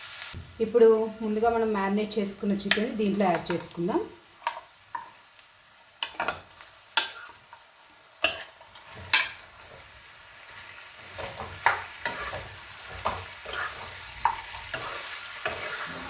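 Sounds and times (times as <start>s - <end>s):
chicken sizzling in a pan: 0.0s - 16.0s
spoon scraping and knocking pan: 2.6s - 3.8s, 4.4s - 5.2s, 6.0s - 9.9s, 11.0s - 16.0s.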